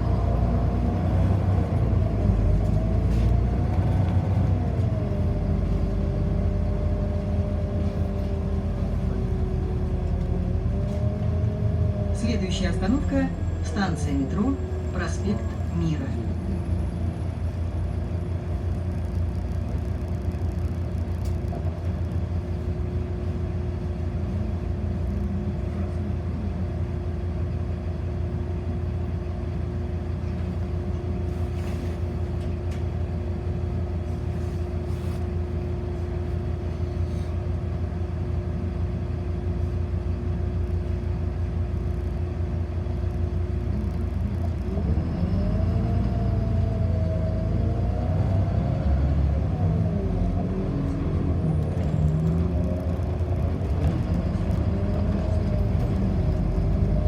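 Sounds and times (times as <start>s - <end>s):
bus engine rumble: 0.0s - 57.0s
rising engine whine: 43.4s - 57.0s.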